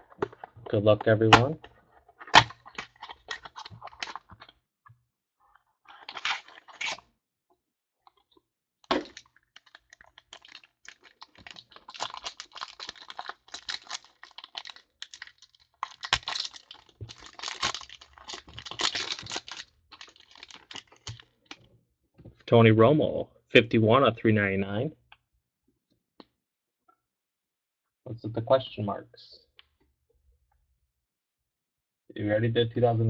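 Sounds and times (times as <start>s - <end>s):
cardboard tearing and crinkling: 6.0s - 7.0s, 8.9s - 21.2s
cards rustling: 8.9s - 21.3s.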